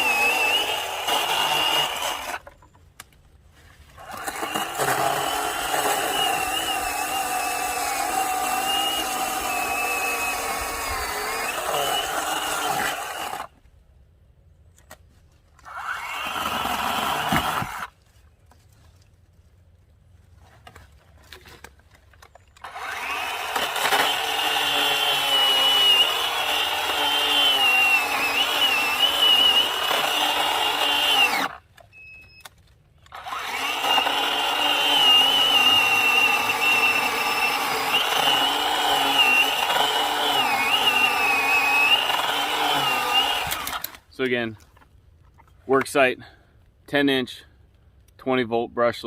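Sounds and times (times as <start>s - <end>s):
cordless chainsaw whining: 0.0s - 2.5s, 4.0s - 13.6s, 15.6s - 17.9s, 22.6s - 31.6s, 33.1s - 44.1s.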